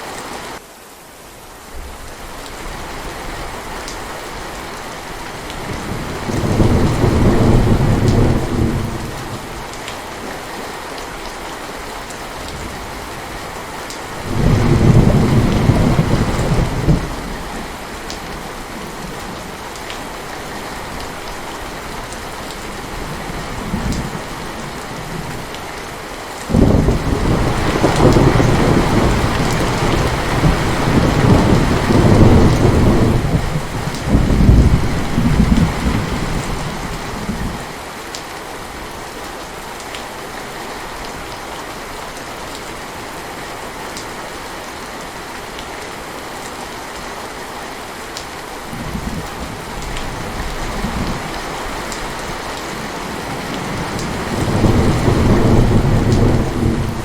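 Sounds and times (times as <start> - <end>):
heavy rain: 0.0 - 57.0
thunder rumbling: 5.6 - 9.5, 14.2 - 17.7, 26.5 - 37.6, 48.7 - 57.0.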